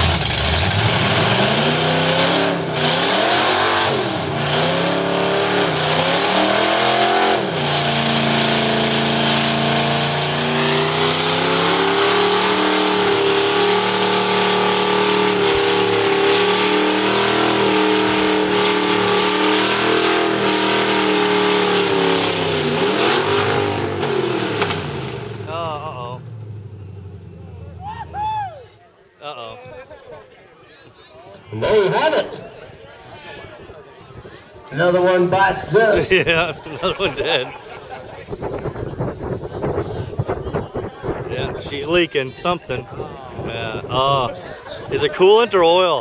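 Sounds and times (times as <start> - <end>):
car engine revving hard: 0.0 - 26.8.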